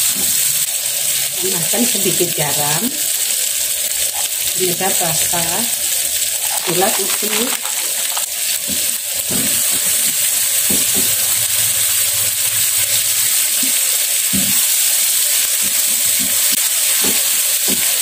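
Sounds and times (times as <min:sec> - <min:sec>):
spice paste sizzling in oil: 0:00.0 - 0:18.0
spatula scraping and tapping: 0:06.4 - 0:09.9.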